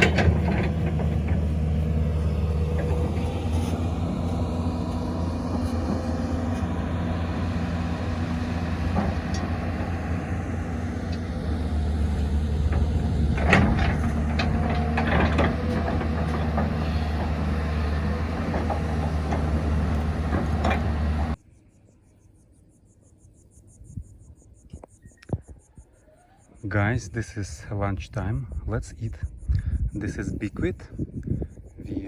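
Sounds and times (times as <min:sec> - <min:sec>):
rattles and knocks: 0:00.0 - 0:21.4
vehicle engine droning: 0:00.0 - 0:21.4.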